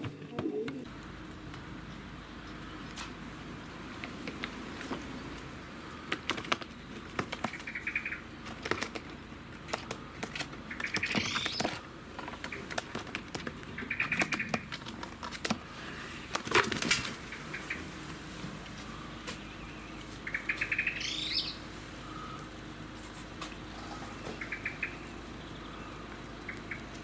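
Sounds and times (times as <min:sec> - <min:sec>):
jackdaw calls: 0:00.0 - 0:27.0
bird flapping and scrabbling: 0:06.0 - 0:17.9.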